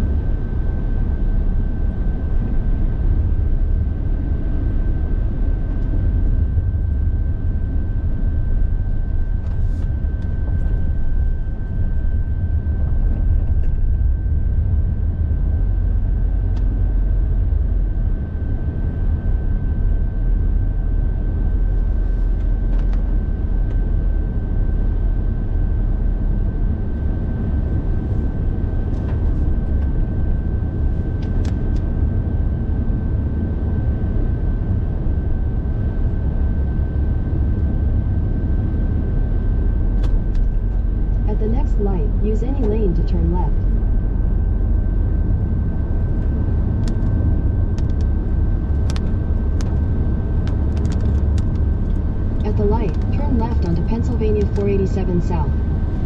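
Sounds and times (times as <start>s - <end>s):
car engine and tyres rumbling: 0.0s - 24.3s, 26.9s - 32.3s, 39.0s - 54.0s.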